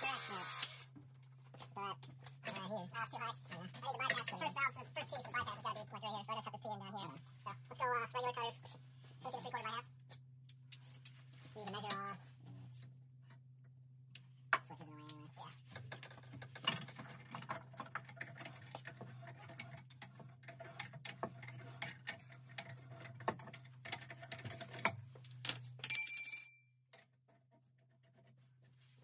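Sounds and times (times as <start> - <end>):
tools tapping on pipe fittings: 15.7 - 28.4.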